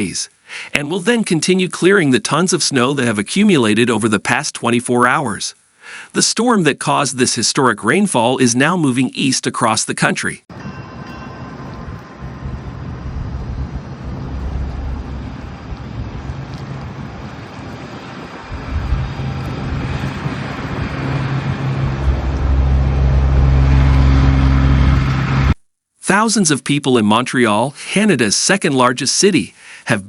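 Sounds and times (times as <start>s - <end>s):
vehicle engine humming: 10.5s - 25.6s.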